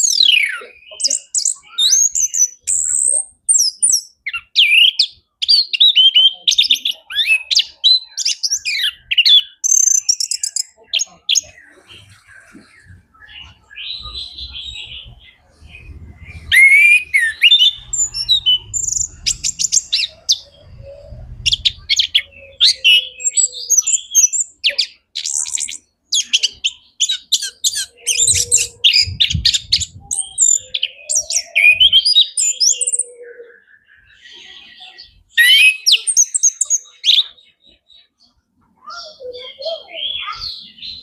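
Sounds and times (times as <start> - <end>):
thrush singing: 11.4 - 23.4
low rumbles: 12.7 - 22.6.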